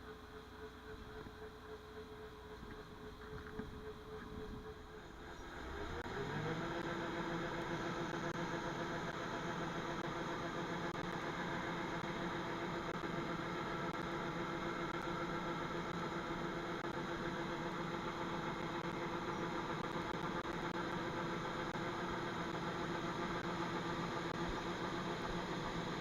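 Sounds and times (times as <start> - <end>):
farm machinery engine hum: 0.0 - 26.0.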